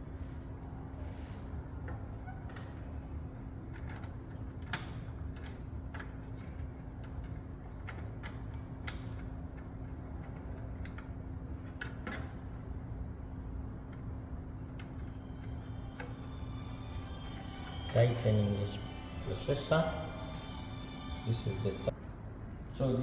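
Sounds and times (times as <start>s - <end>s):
low hum: 13.8s - 22.4s.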